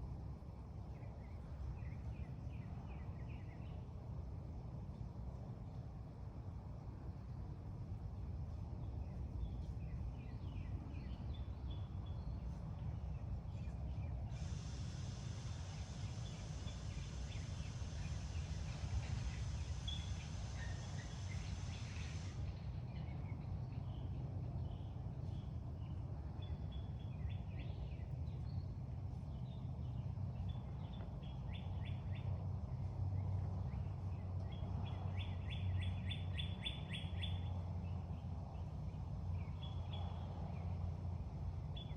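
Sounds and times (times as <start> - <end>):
steady low hum: 0.0 - 41.9
high hiss: 14.2 - 23.1
birds chirping in trills: 14.4 - 23.1.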